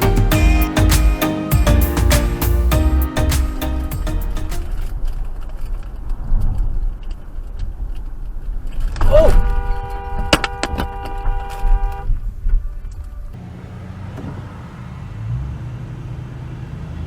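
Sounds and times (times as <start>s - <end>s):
car horn blaring: 9.4s - 12.1s
car and road rumble: 13.3s - 17.0s.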